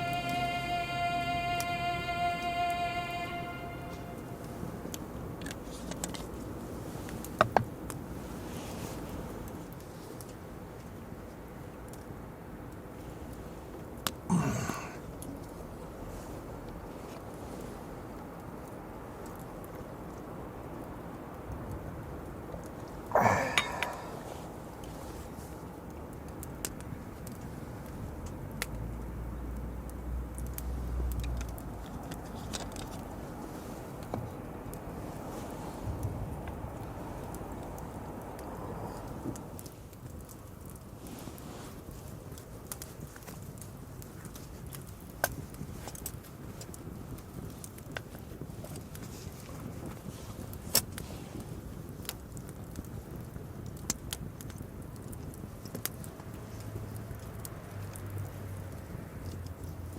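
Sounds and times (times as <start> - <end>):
low steady rumble: 0.0 - 7.1
campfire crackling and popping: 3.4 - 59.9.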